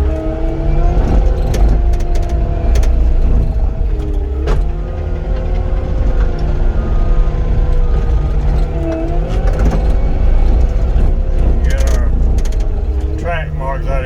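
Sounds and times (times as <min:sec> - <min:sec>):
diesel engine rumbling with whine: 0:00.0 - 0:14.0
sharp metallic clicks and clanks: 0:09.4 - 0:13.6.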